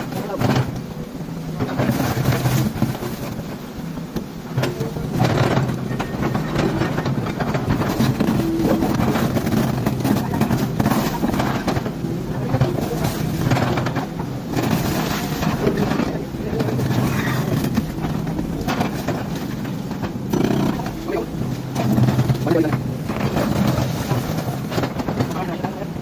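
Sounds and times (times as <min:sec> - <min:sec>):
heavy machinery rumbling: 0:00.0 - 0:26.0.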